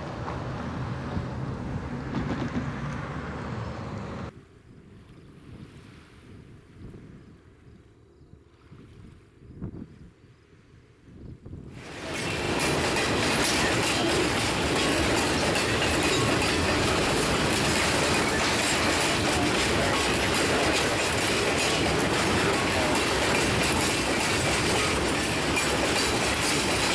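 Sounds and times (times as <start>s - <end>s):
train wheels clattering on rails: 2.0s - 3.0s, 11.8s - 26.9s.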